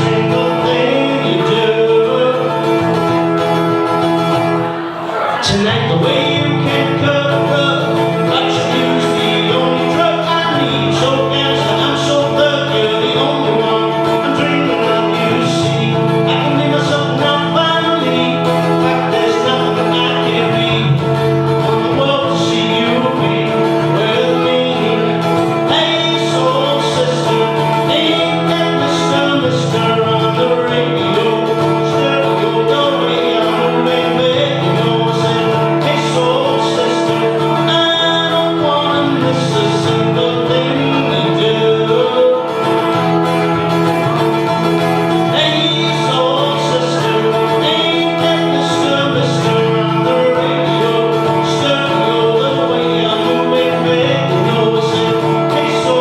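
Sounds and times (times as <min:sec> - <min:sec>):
man singing pop song: 0:00.0 - 0:03.8, 0:04.8 - 0:56.0
strummed acoustic guitar: 0:00.0 - 0:56.0.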